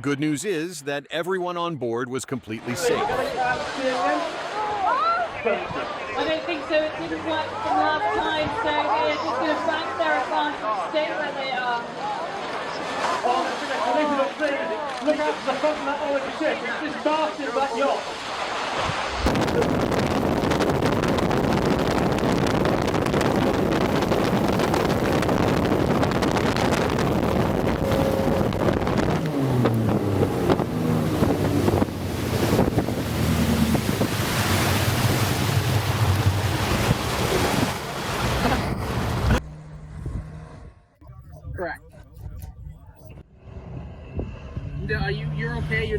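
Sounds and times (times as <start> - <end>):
rushing water and waves: 2.4 - 39.4
wind buffeting microphone: 18.8 - 45.1.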